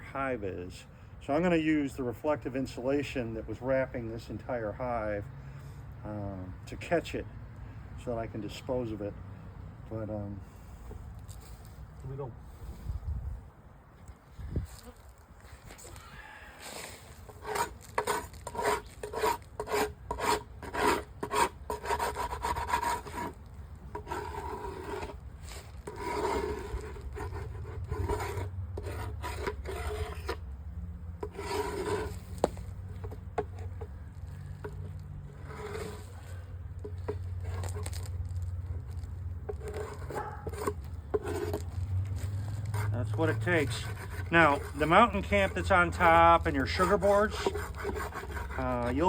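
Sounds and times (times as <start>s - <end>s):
scraping wooden board: 17.1s - 30.5s, 31.2s - 49.0s.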